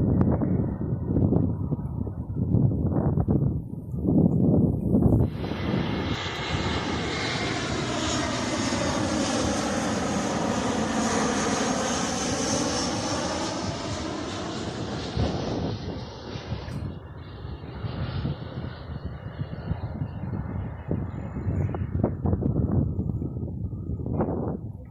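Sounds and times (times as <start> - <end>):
airliner engine noise: 0.0 - 24.9.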